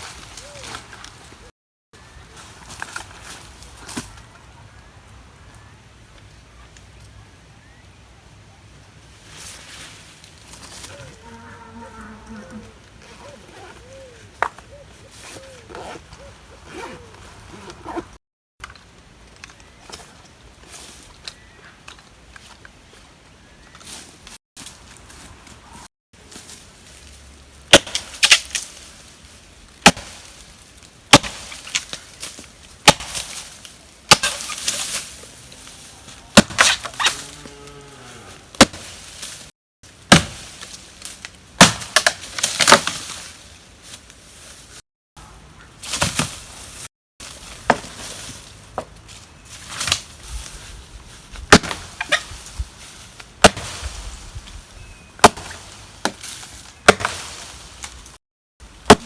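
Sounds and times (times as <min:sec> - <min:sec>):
wood being chopped: 0:27.7 - 0:28.7, 0:29.8 - 0:30.3, 0:31.1 - 0:32.0, 0:32.8 - 0:33.4, 0:34.1 - 0:34.6, 0:36.4 - 0:37.0, 0:38.5 - 0:39.0, 0:40.1 - 0:40.7, 0:41.6 - 0:43.1, 0:47.6 - 0:48.1, 0:49.8 - 0:50.1, 0:51.5 - 0:52.2, 0:53.4 - 0:53.9, 0:55.2 - 0:57.5.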